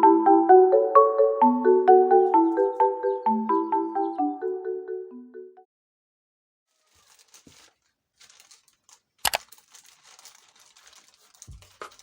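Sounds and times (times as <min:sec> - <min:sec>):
soft rustling and crinkling: 0:06.7 - 0:12.0.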